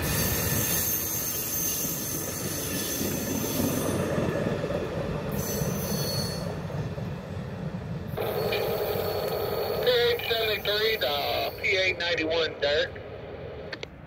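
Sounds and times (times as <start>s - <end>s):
train rumbling along track: 0.0s - 14.0s
faint wheel squeal: 5.3s - 6.6s.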